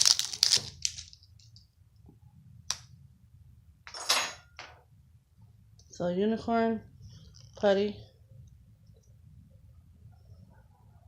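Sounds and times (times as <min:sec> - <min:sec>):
plastic packaging crinkling: 0:00.0 - 0:01.5.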